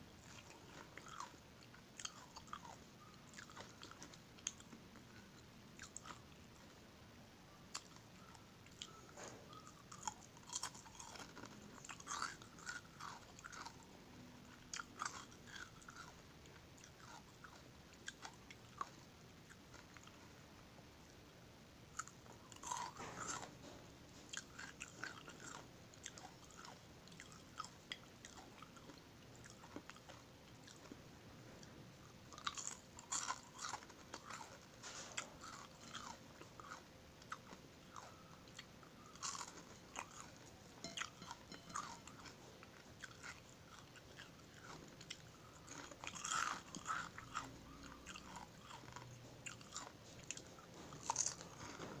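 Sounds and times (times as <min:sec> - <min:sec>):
crunchy fish crunches: 0:22.0 - 0:23.6, 0:32.3 - 0:38.2, 0:39.1 - 0:40.4, 0:43.0 - 0:51.8.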